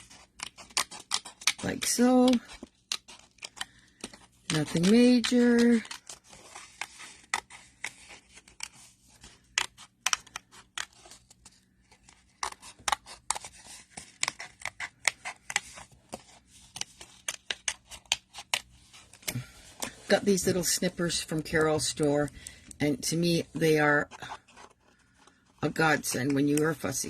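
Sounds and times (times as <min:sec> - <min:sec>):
snippers cutting paper: 0:00.0 - 0:11.2.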